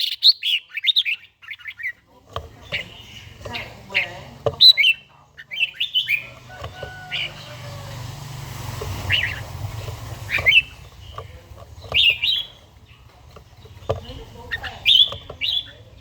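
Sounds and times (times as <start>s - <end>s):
bird whistled song: 0.0s - 2.0s, 2.8s - 7.9s, 9.0s - 13.1s, 14.5s - 16.0s.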